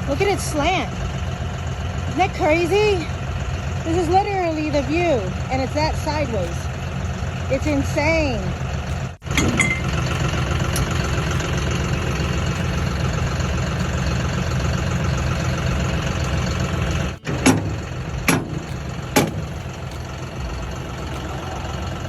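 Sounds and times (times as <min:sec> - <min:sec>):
tractor engine idling: 0:00.0 - 0:22.0
sharp knocks: 0:17.2 - 0:19.7.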